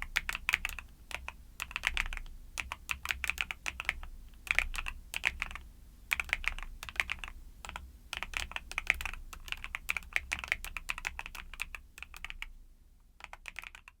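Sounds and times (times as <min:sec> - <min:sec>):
mechanical keyboard typing: 0:00.0 - 0:12.5, 0:13.2 - 0:14.0.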